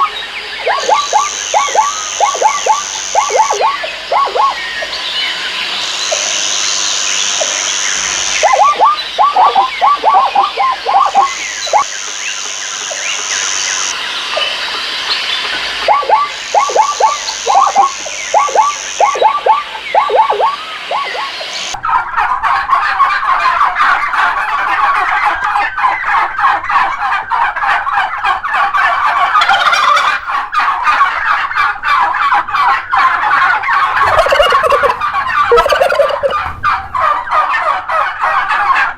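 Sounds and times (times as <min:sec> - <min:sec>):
turkeys gobbling: 0:00.0 - 0:14.6, 0:15.8 - 0:21.8, 0:22.5 - 0:38.9
high buzz: 0:00.0 - 0:21.8
many birds calling: 0:00.0 - 0:21.8, 0:28.5 - 0:38.9.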